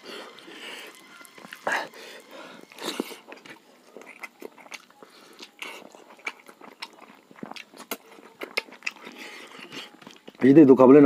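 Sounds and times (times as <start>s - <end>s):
person chewing with mouth clicks: 2.6s - 10.4s.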